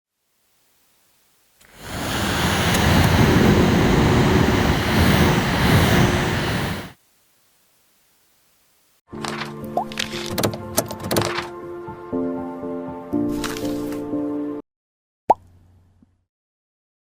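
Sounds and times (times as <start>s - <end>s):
loud rushing air blast: 1.6s - 7.0s.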